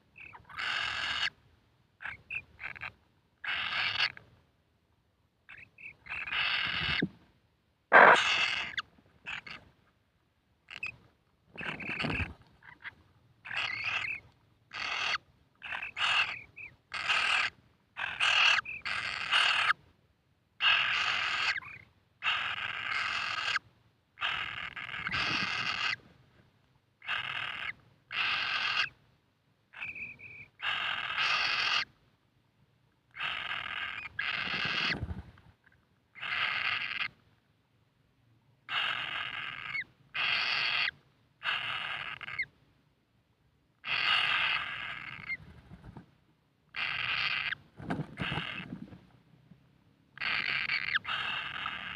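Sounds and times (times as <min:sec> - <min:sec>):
bird chick rasping calls: 0:00.2 - 0:01.4, 0:02.0 - 0:04.2, 0:05.5 - 0:07.1, 0:07.9 - 0:09.7, 0:10.7 - 0:11.0, 0:11.6 - 0:19.8, 0:20.6 - 0:26.0, 0:27.0 - 0:29.0, 0:29.7 - 0:32.0, 0:33.1 - 0:37.2, 0:38.6 - 0:42.6, 0:43.8 - 0:45.8, 0:46.7 - 0:48.9, 0:50.2 - 0:51.9.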